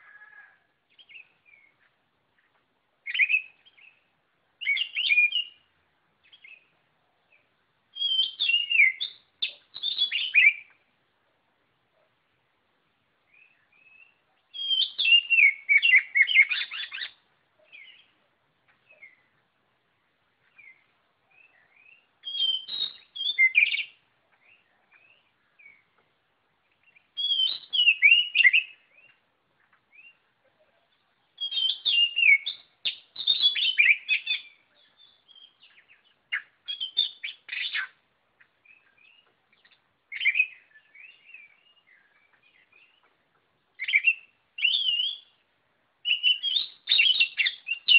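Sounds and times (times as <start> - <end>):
bird singing whistled phrases: 3.1 - 4.0, 4.6 - 5.6, 7.9 - 10.8, 13.4 - 18.1, 21.4 - 25.8, 26.9 - 29.2, 31.4 - 38.0, 38.7 - 43.0, 43.8 - 45.4, 46.0 - 47.9.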